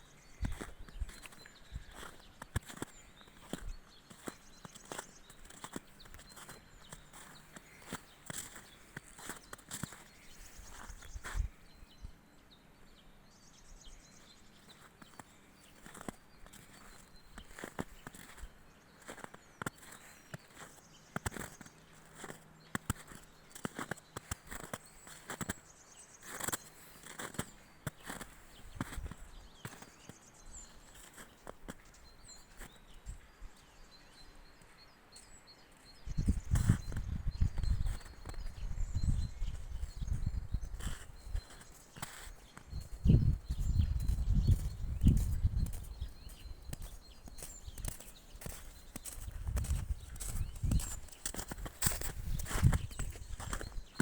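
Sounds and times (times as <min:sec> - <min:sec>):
small birds chirping: 0:00.0 - 0:54.0
footsteps on forest floor: 0:00.5 - 0:11.6, 0:14.7 - 0:25.6, 0:40.8 - 0:54.0.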